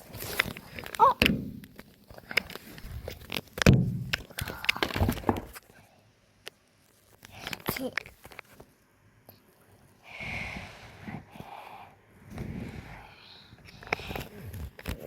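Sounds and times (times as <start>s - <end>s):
child's high vocal sound: 1.0s - 1.2s.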